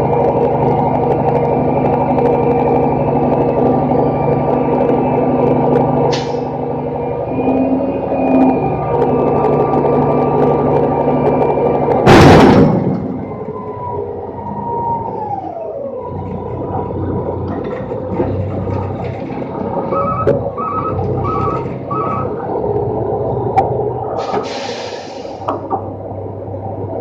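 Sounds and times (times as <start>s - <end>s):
truck engine and hydraulics running: 0.0s - 27.0s
loud metal bang: 12.0s - 13.5s.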